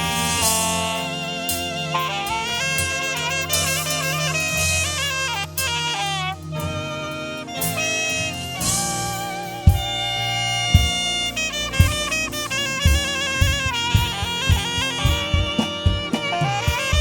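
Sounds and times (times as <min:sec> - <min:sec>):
saxophone melody with vibrato: 0:00.0 - 0:17.0
sustained backing chords: 0:00.0 - 0:17.0
low drum hits: 0:10.7 - 0:17.0.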